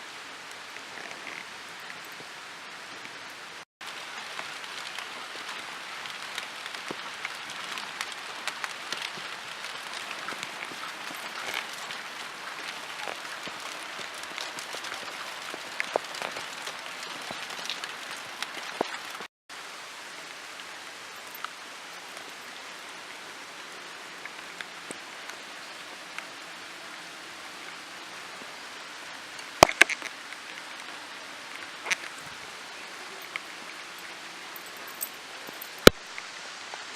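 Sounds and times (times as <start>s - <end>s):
steady rain falling: 0.0s - 36.9s.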